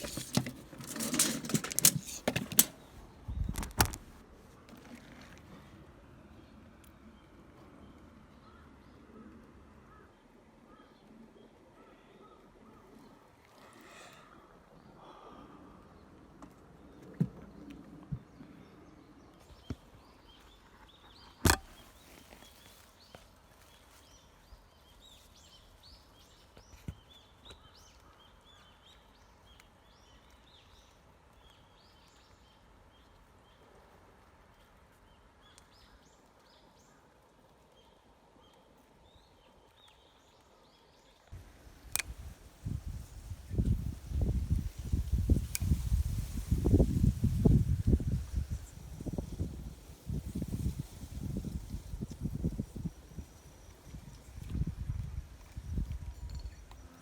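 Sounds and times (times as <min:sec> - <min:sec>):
small birds chirping: 0:00.0 - 0:04.2, 0:04.8 - 0:57.0
sharp clicks: 0:41.9 - 0:42.1.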